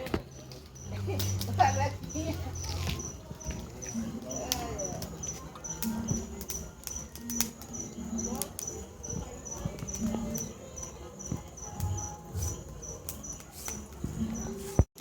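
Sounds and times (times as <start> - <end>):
cricket chirping: 0.3 - 14.7
sharp clicks and cracks: 2.8 - 8.8.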